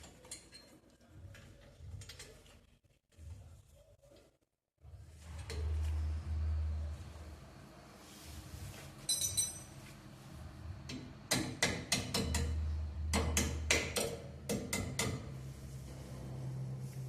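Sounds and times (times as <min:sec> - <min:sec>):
metallic clink: 0:09.1 - 0:09.8.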